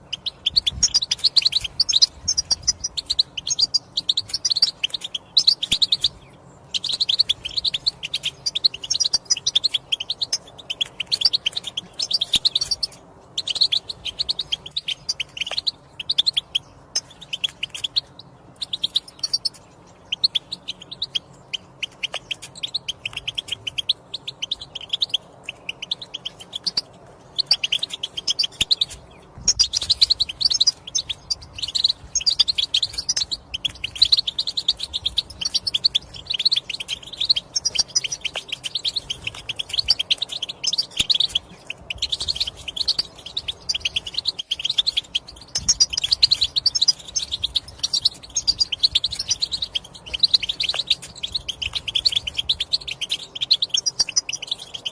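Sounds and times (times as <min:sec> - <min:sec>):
goldfinch twittering: 0:00.0 - 0:54.9.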